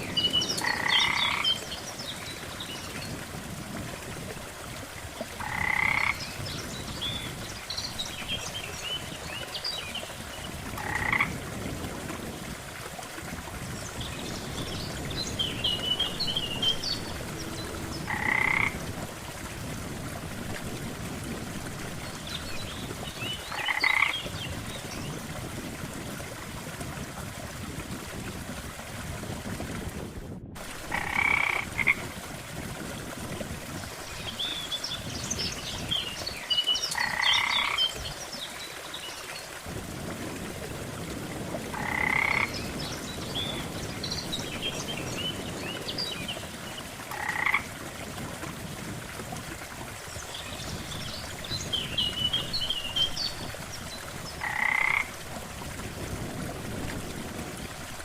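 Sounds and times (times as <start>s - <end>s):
frog croaking: 0.6s - 1.6s, 5.4s - 6.2s, 10.8s - 11.3s, 18.0s - 18.8s, 23.5s - 24.2s, 30.9s - 32.0s, 37.0s - 37.8s, 41.7s - 42.5s, 47.1s - 47.7s, 54.4s - 55.2s
high chirping frog calls: 0.6s - 1.6s, 5.4s - 6.2s, 10.8s - 11.3s, 18.0s - 18.8s, 36.9s - 37.8s, 54.4s - 55.1s.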